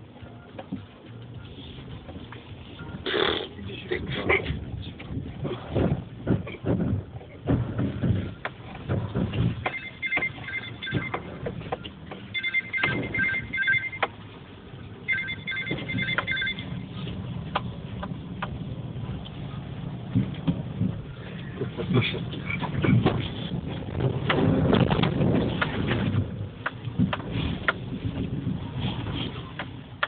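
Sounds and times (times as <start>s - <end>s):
low hum: 0.0s - 29.6s
electronic ring tone beeps: 9.7s - 11.3s, 12.3s - 14.1s, 15.1s - 17.0s
knocks and rattles: 21.7s - 28.4s.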